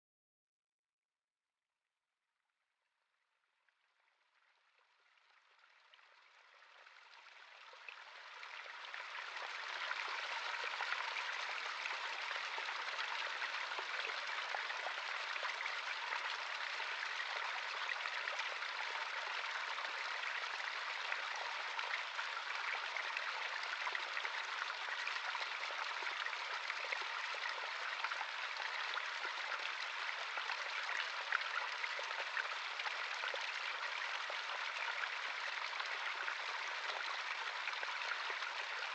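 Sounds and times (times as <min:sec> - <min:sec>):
stream running over rocks: 0:07.8 - 0:38.9.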